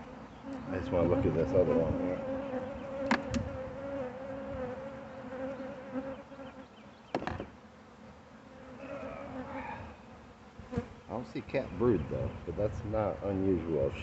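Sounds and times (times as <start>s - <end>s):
honeybees buzzing: 0.0s - 14.0s
sharp knocks: 7.1s - 7.5s.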